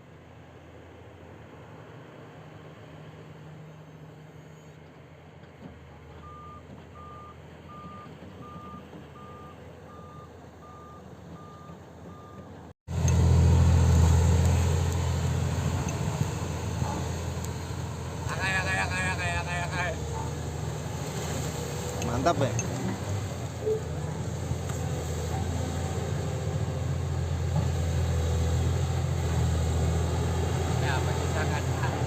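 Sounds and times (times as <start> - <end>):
diesel engine running: 0.2 - 32.0
back-up alarm beeping: 6.2 - 12.5.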